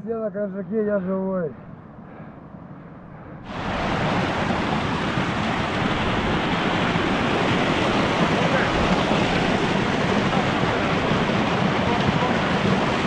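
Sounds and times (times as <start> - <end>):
wind noise rushing: 3.4 - 13.0.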